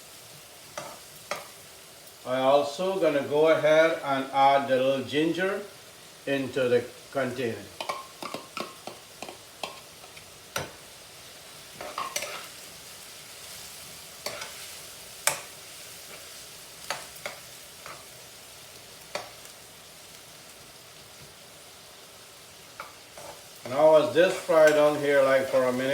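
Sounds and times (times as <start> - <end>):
vegetables sizzling in hot oil: 0.0 - 25.9
spoon scraping a pot: 11.8 - 12.5.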